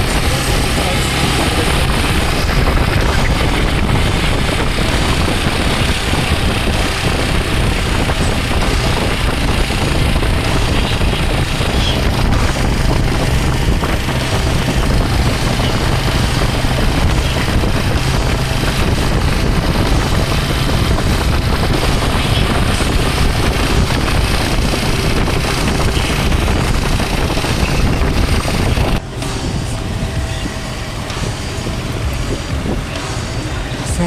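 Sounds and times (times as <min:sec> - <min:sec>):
motorcycle engine running: 0:00.0 - 0:34.0
wind hiss on microphone: 0:00.0 - 0:34.0.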